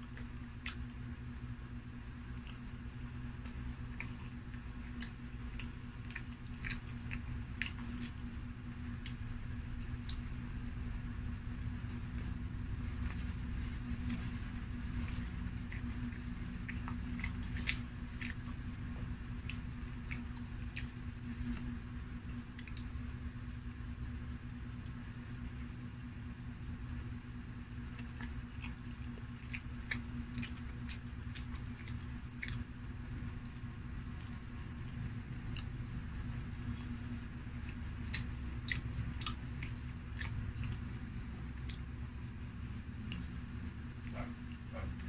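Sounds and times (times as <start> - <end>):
person chewing: 0.0 - 1.2, 1.8 - 45.0
low hum: 0.0 - 45.0.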